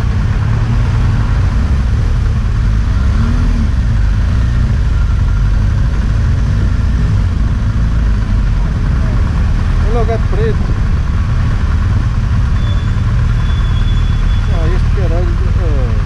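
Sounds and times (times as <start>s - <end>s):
motorcycle engine rumble: 0.0s - 16.0s.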